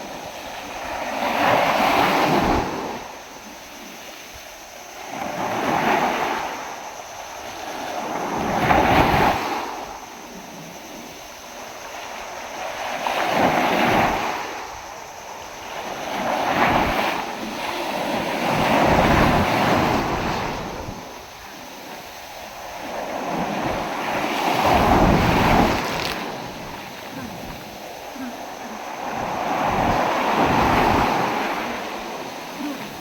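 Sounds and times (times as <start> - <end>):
waves breaking: 13.0 - 33.0
wind on microphone: 16.2 - 33.0.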